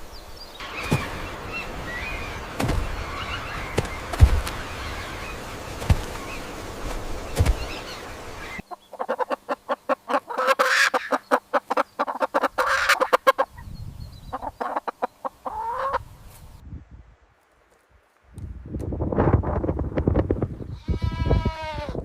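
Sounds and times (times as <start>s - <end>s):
outdoor background noise: 0.0s - 22.0s
chickens clucking: 8.5s - 16.1s.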